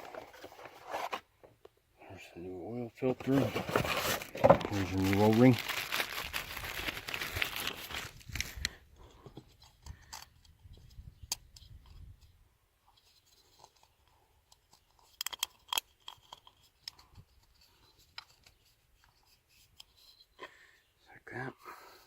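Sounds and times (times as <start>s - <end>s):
hands handling oil filter: 3.0s - 10.9s, 12.9s - 20.4s.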